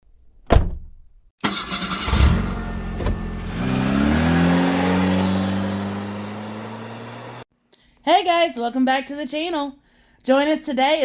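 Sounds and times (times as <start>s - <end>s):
car engine starting and idling: 1.4s - 7.4s.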